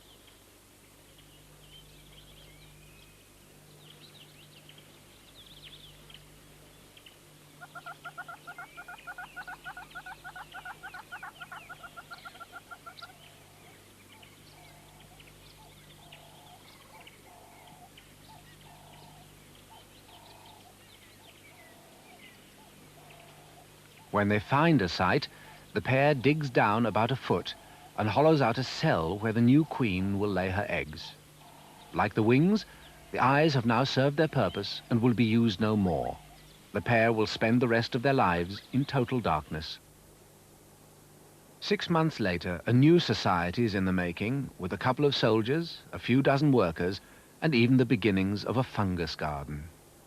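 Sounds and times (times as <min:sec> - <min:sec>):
birds chirping and trilling: 0:00.0 - 0:39.8
lower bird calls: 0:00.0 - 0:39.8.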